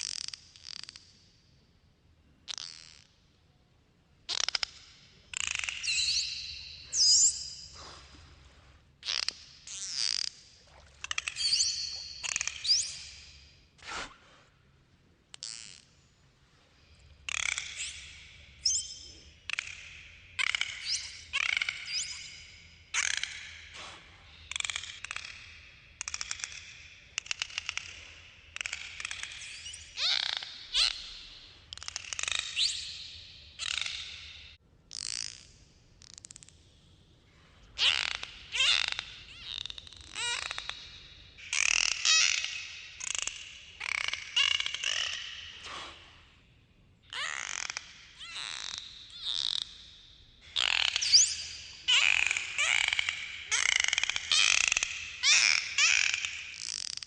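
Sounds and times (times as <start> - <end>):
dolphin whistles: 17.3 - 34.4, 37.8 - 46.1, 47.1 - 57.0.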